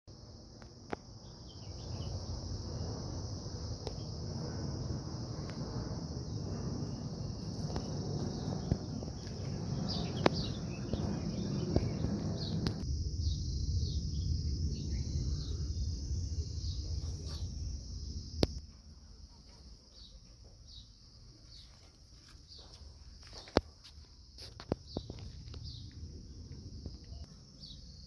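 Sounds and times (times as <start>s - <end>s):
insect chorus: 0.1s - 28.0s
low rumble: 1.8s - 18.6s.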